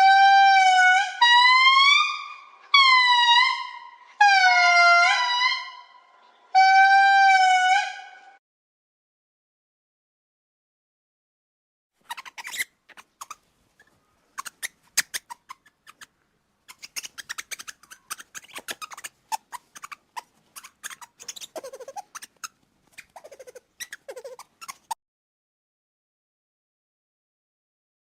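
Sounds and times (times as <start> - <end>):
primate chirps and squeaks: 12.0 - 25.0.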